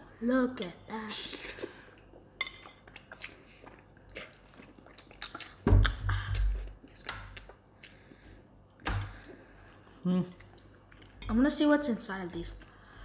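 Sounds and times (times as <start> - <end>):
noodles slurped and chewed: 2.8 - 8.2.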